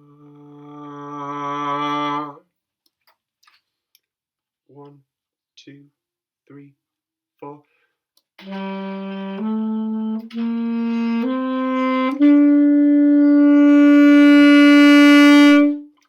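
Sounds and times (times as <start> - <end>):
saxophone playing: 8.4 - 16.0.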